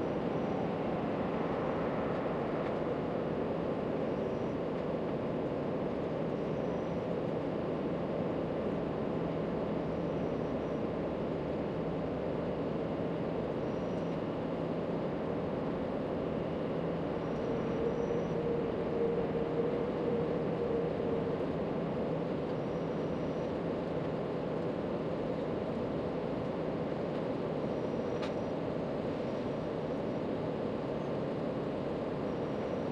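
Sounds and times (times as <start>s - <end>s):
faint hum: 9.6s - 32.9s.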